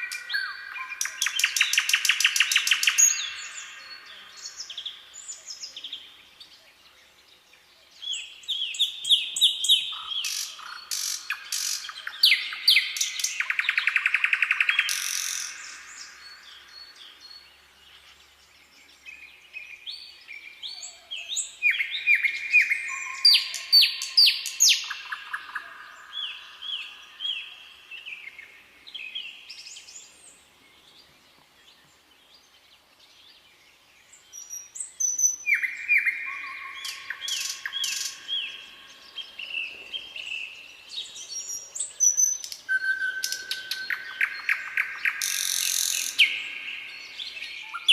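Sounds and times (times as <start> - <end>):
songbirds chirping and whistling: 0.0 - 47.9
bird trill: 8.6 - 17.0, 34.4 - 40.6, 41.2 - 47.9.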